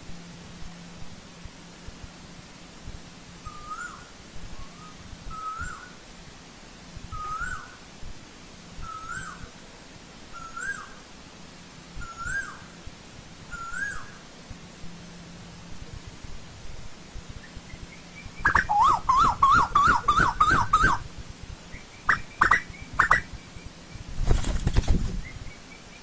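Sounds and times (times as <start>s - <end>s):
koel calling: 17.4s - 21.0s, 21.8s - 24.0s.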